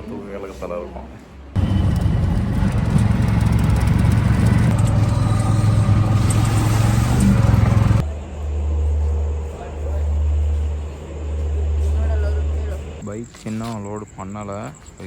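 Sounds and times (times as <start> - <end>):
vehicle engine running: 1.6 - 12.8.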